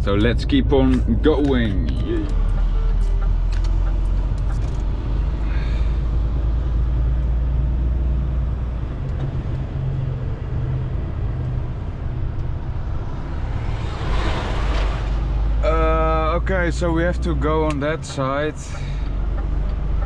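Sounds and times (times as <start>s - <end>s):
diesel truck engine running: 0.0s - 20.0s
road noise: 0.0s - 20.0s.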